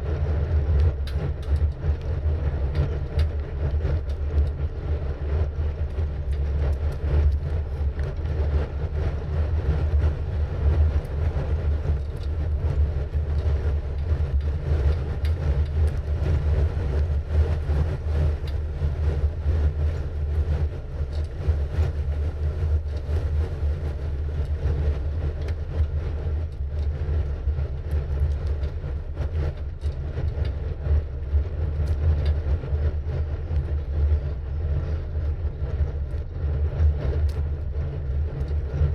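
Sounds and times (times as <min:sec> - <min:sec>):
bicycle tyres on road: 0:00.0 - 0:38.9
wind on microphone: 0:00.0 - 0:38.9
faint ticks: 0:31.8 - 0:32.4.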